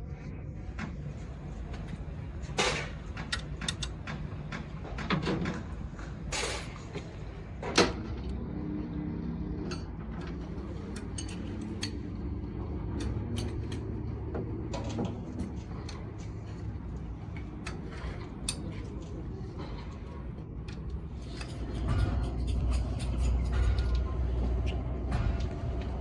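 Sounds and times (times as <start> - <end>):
steady low hum: 0.0 - 26.0
metal tools clinking and knocking: 2.5 - 5.6, 9.7 - 16.2, 20.7 - 25.5.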